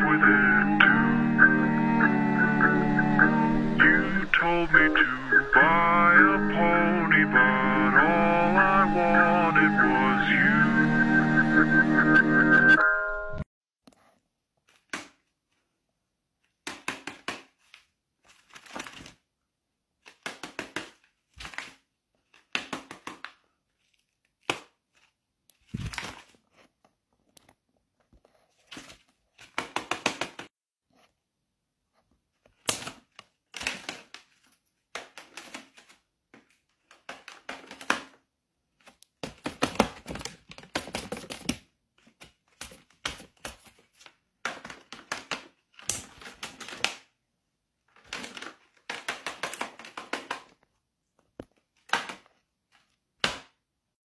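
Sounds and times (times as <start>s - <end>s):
stiff paper crinkling: 17.4s - 19.2s, 20.0s - 26.9s.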